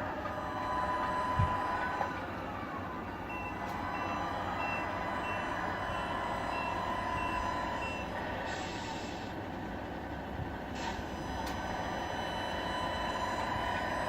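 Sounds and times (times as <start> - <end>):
steady running noise: 0.0 - 8.6
reversing beeper short high beeps: 3.3 - 9.1.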